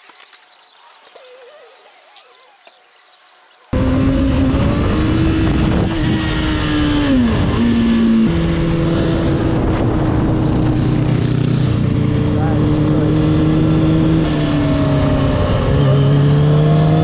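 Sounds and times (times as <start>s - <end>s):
motorcycle engine running: 3.7s - 17.0s
rushing wind noise: 3.8s - 16.2s.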